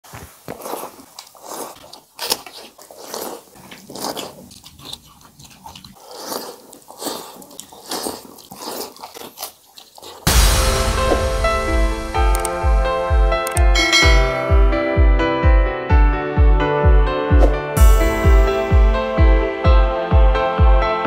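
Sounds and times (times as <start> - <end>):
wet chewing and smacking: 0.2 - 10.3
piano-like music: 10.3 - 21.0.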